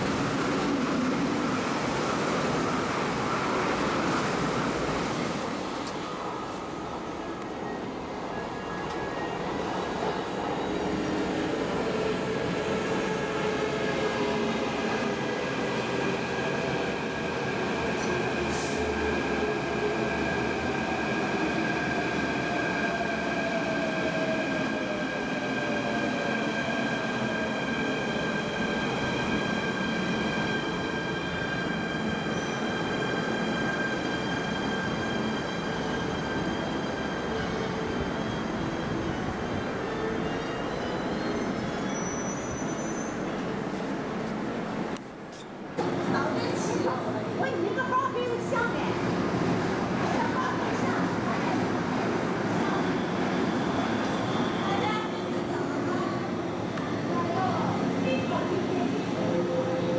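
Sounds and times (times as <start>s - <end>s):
train rail noise: 0.0s - 59.9s
train wheel squeal: 22.7s - 43.5s, 52.5s - 55.1s.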